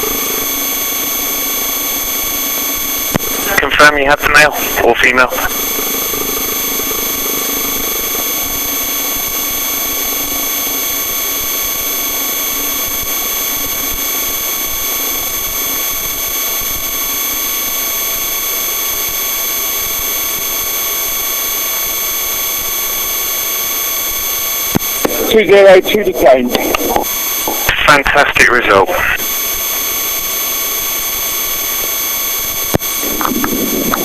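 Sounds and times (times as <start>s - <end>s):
helicopter engine and rotor drone: 0.0s - 34.0s
high whining tones: 31.9s - 34.0s.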